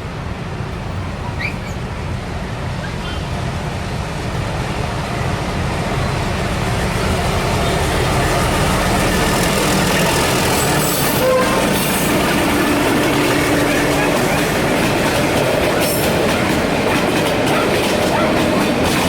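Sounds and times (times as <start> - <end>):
freight train approaching: 0.0 - 19.0.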